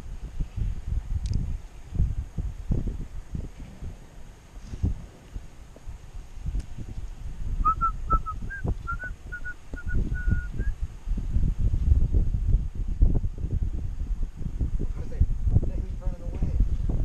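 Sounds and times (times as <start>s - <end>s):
wind rumble on microphone: 0.0s - 17.0s
short whistled notes: 7.6s - 10.8s.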